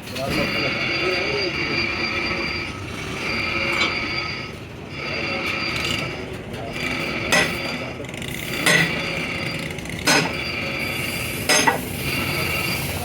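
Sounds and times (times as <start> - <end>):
high-pitched machine whine: 0.1 - 13.0
metal-on-metal knocks: 10.0 - 10.4.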